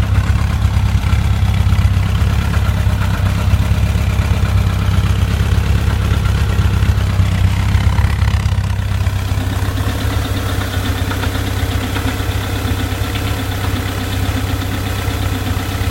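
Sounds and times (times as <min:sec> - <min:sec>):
engine idling: 0:00.0 - 0:15.9
engine knocking: 0:00.0 - 0:15.9.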